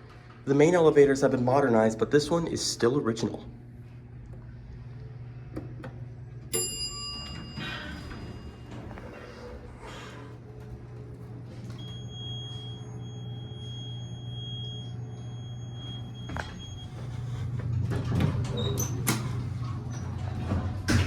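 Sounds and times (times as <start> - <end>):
elevator humming: 1.9 - 21.0
elevator rumble: 3.5 - 21.0
thin high whine: 11.6 - 17.6.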